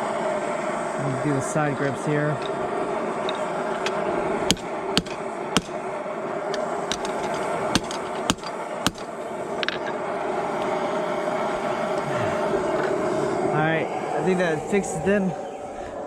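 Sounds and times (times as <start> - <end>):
gas forge burner: 0.0 - 16.0
hammer striking steel on anvil: 4.5 - 5.8, 6.9 - 9.8.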